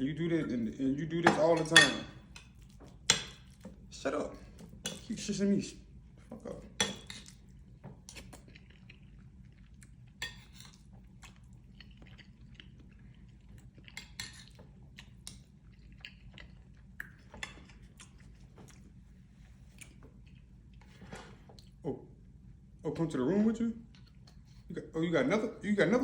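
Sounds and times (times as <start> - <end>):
quiet chewing: 2.1 - 5.2, 6.0 - 22.2, 23.8 - 24.7.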